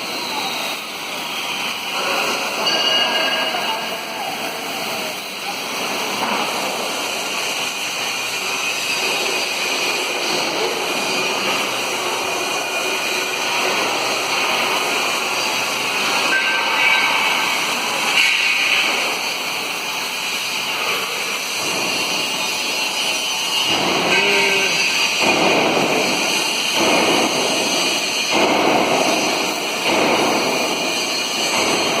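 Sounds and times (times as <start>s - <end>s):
factory noise: 0.0s - 32.0s
torch flame hissing: 16.9s - 31.9s.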